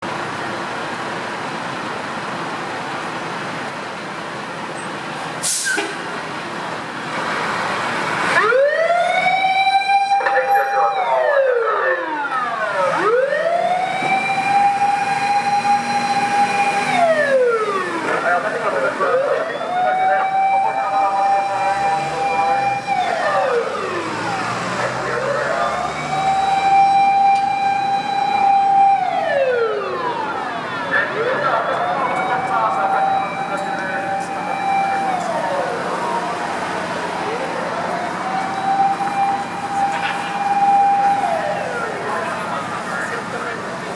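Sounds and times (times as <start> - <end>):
fire engine running: 0.0 - 43.9
short hiss: 5.4 - 6.0
siren wailing: 8.3 - 43.6.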